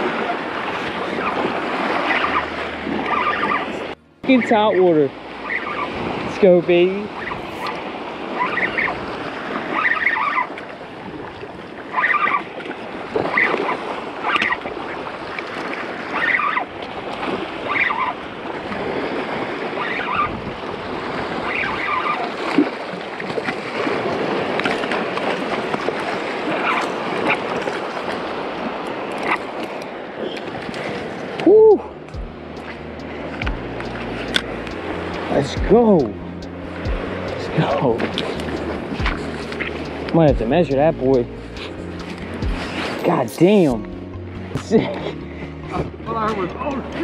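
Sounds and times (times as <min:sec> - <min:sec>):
surf washing over rocks: 0:00.0 - 0:36.1, 0:36.7 - 0:43.8, 0:44.5 - 0:47.0
wind on microphone: 0:00.0 - 0:47.0
short high squeaks: 0:05.4 - 0:06.0.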